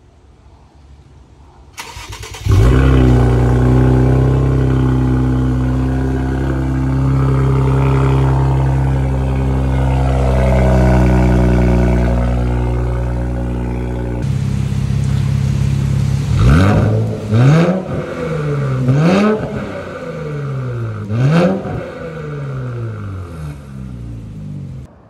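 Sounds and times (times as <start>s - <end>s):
engine cranking and starting: 1.8s - 3.6s
loud engine idling: 2.5s - 17.3s.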